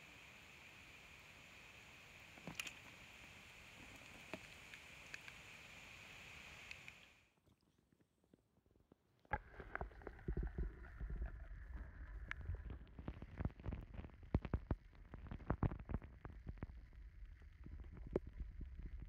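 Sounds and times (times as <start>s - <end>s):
underwater clicks and knocks: 9.3s - 16.8s
muffled underwater rumble: 9.3s - 19.0s.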